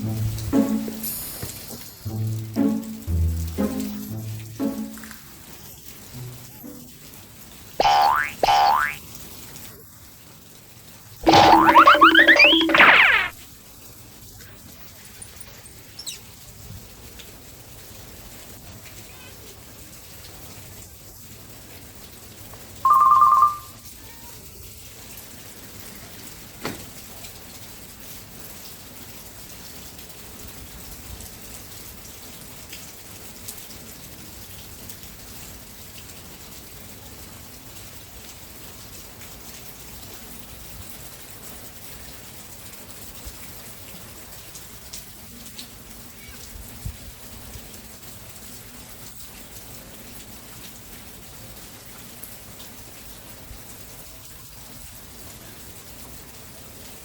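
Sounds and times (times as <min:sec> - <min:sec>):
rain falling: 0:00.0 - 0:57.0
short loud high tone: 0:22.9 - 0:23.7.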